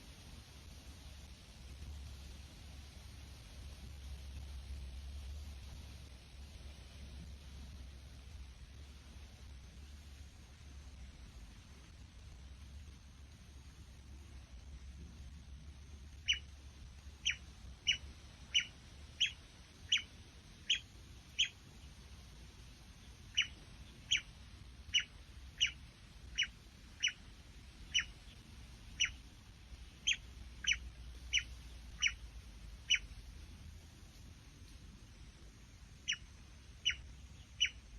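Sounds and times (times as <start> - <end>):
bird chirping: 16.2 - 16.5, 17.2 - 22.0, 23.0 - 33.2, 36.0 - 37.9.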